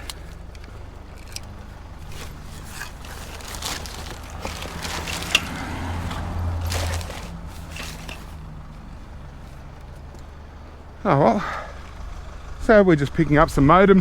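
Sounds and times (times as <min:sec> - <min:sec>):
electronics and cords scraping: 0:00.0 - 0:10.3
vehicle engine humming: 0:00.0 - 0:14.0.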